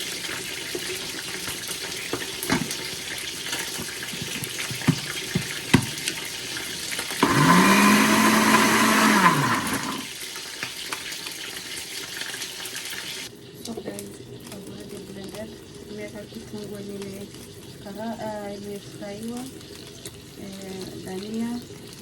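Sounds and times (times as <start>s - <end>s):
electric blender motor: 7.1s - 10.2s.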